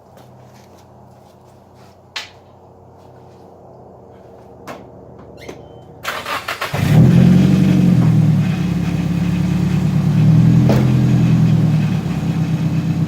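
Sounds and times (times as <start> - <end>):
starter cranking engine: 6.1 - 9.0
engine idling: 6.7 - 13.0.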